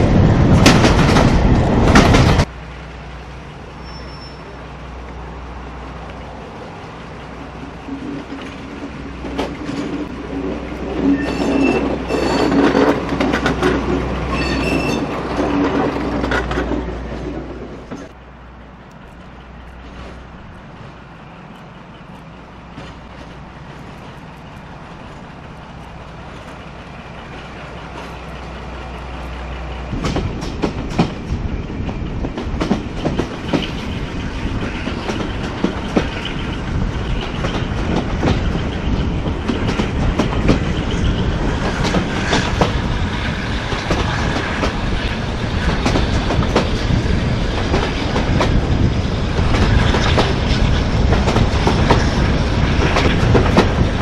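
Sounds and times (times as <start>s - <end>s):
train running on rails: 0.0s - 54.0s
train wheel squeal: 3.7s - 4.6s, 10.9s - 13.0s, 14.3s - 15.8s
wheels clattering over track: 7.4s - 18.2s, 22.1s - 54.0s.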